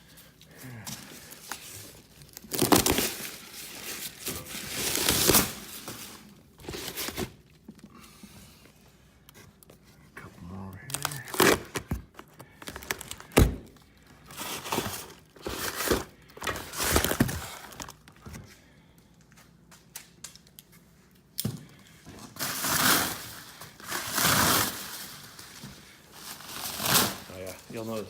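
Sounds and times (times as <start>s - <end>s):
packing material crinkling and tearing: 0.0s - 7.8s, 10.7s - 18.3s, 22.2s - 28.0s.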